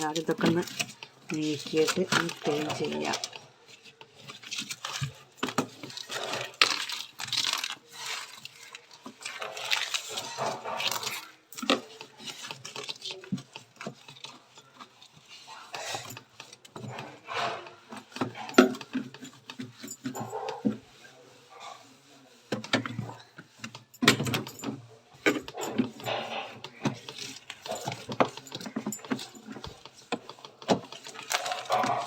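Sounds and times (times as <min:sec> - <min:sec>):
ice being chipped and scraped: 0:04.2 - 0:16.0.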